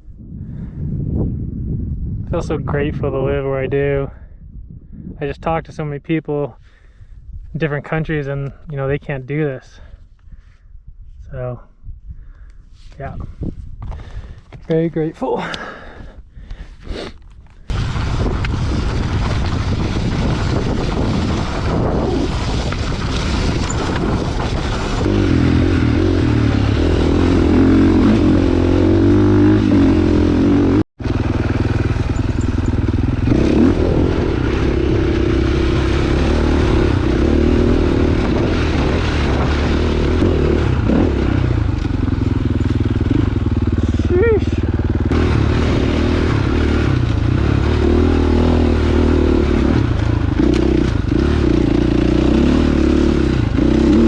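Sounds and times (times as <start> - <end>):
dirt bike engine running: 17.6 - 54.0.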